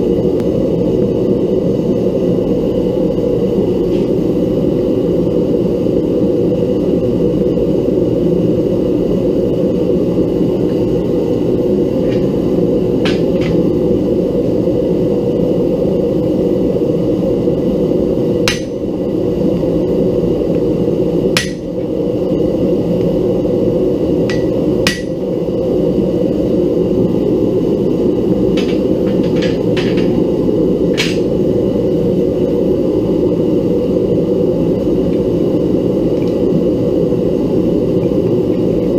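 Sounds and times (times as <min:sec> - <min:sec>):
gas forge burner roaring: 0:00.0 - 0:38.9
hammer striking metal: 0:18.5 - 0:18.8, 0:21.4 - 0:21.7, 0:24.3 - 0:25.2.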